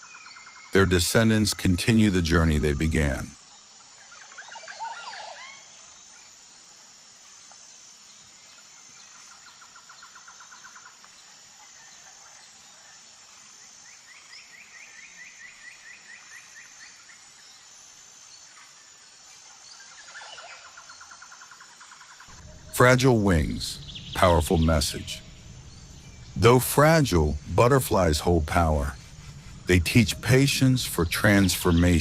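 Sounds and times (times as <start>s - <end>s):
insect-like pulsing hiss: 0.0s - 32.0s
rapid trills: 22.3s - 32.0s.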